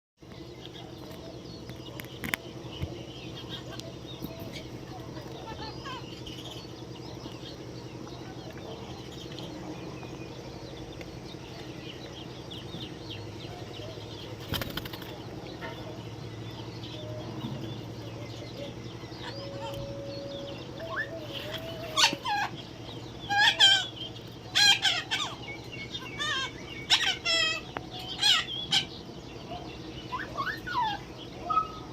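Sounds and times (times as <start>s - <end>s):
steady low hum: 0.2s - 31.9s
parrots chirping: 0.6s - 31.9s
parrots squawking harshly: 23.3s - 23.9s, 24.5s - 28.9s.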